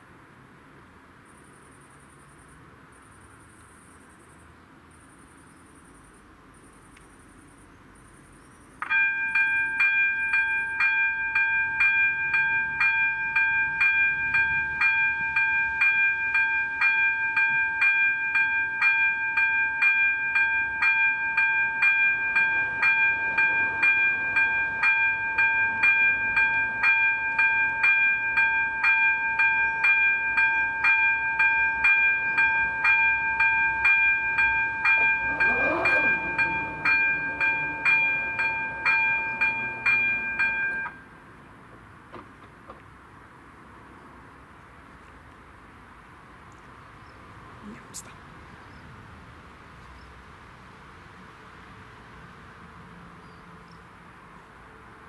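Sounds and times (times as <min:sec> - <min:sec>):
crossing warning bell dinging: 0:08.8 - 0:41.5.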